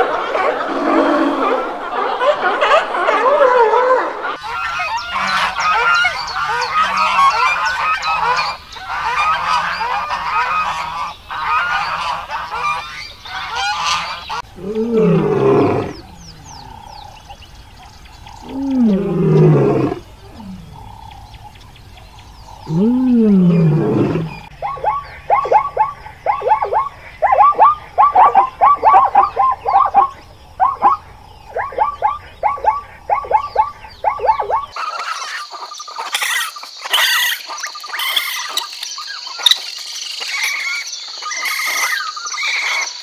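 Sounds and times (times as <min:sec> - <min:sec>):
lion calling: 0:13.5 - 0:17.4, 0:18.2 - 0:21.4, 0:22.5 - 0:34.8
high chirping and clicking: 0:35.8 - 0:42.4.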